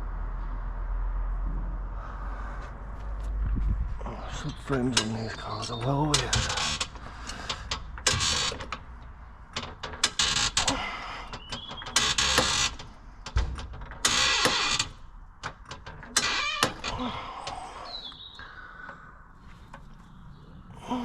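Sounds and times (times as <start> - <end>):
metallic clicks and knocks: 4.6 - 17.6.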